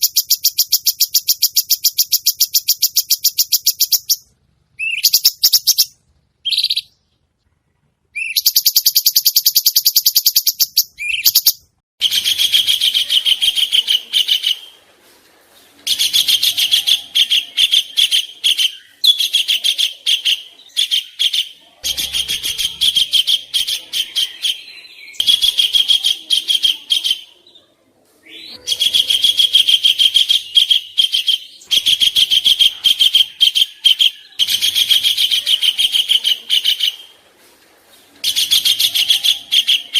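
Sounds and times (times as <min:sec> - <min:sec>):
songbird chattering trills: 0:04.8 - 0:07.0, 0:15.9 - 0:27.5.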